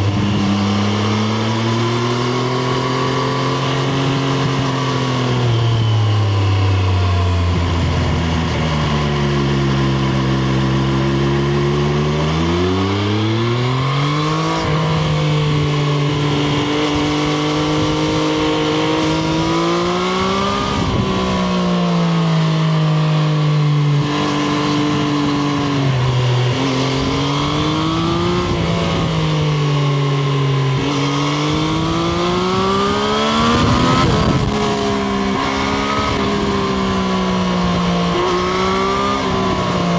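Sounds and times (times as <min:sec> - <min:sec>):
wind noise: 0:00.0 - 0:09.5, 0:14.0 - 0:22.2, 0:23.9 - 0:39.9
motorcycle engine accelerating: 0:00.0 - 0:39.9.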